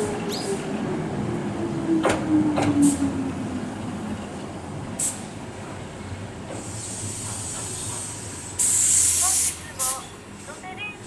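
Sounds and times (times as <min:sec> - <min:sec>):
train rolling rumble: 0:00.0 - 0:11.0
high air hiss: 0:06.6 - 0:10.1.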